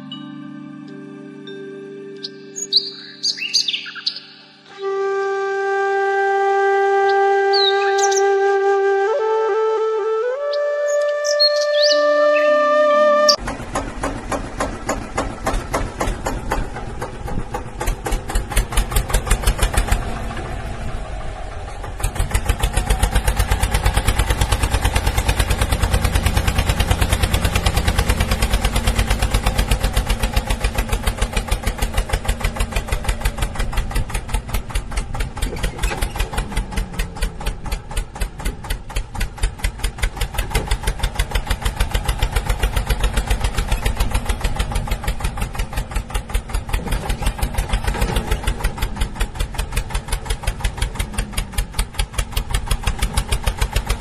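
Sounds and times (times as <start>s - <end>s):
tractor engine thumping: 13.3s - 54.0s.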